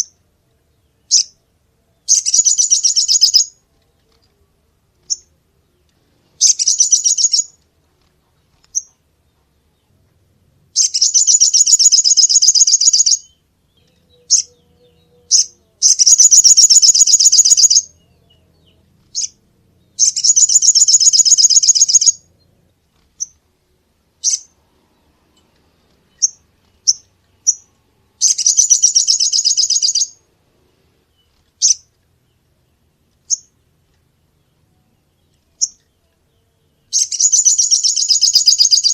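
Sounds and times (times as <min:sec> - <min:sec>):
songbird chirps: 0:00.0 - 0:38.9
songbird trilling: 0:02.1 - 0:03.6, 0:06.4 - 0:07.6, 0:10.8 - 0:19.4, 0:20.0 - 0:22.3, 0:24.2 - 0:24.6, 0:26.2 - 0:30.2, 0:31.6 - 0:31.9, 0:35.5 - 0:38.9.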